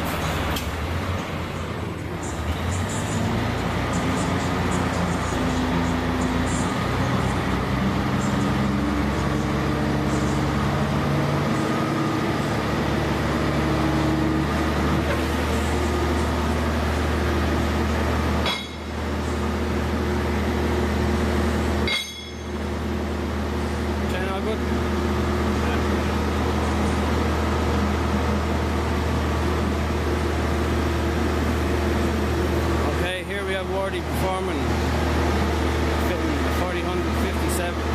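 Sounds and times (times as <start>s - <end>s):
heavy machine engine droning: 0.0s - 37.9s.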